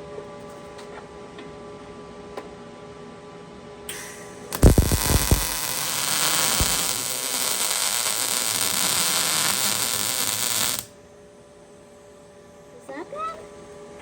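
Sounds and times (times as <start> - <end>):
welding arc hissing: 3.9 - 10.9
arc popping: 4.5 - 10.9.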